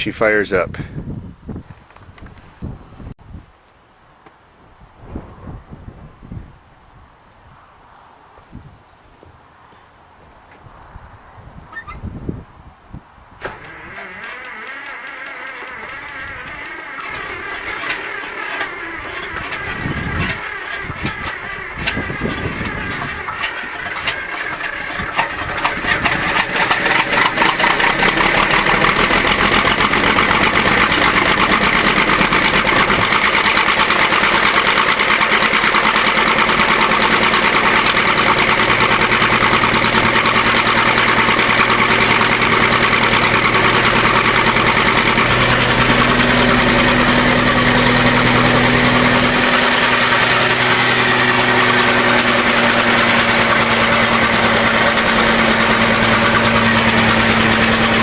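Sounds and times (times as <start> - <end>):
dozer engine starting and running: 13.4 - 58.0.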